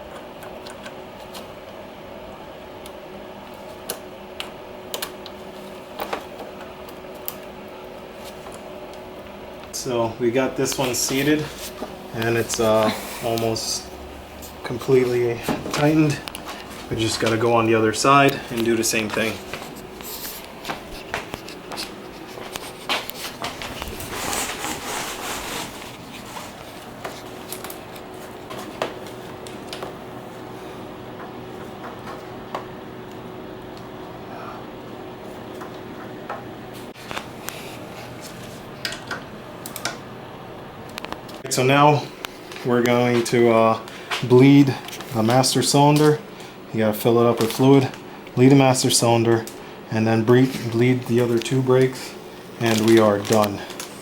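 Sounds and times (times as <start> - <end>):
faint steady hum: 0.0 - 54.0
hands handling tools: 14.4 - 28.9, 52.6 - 54.0.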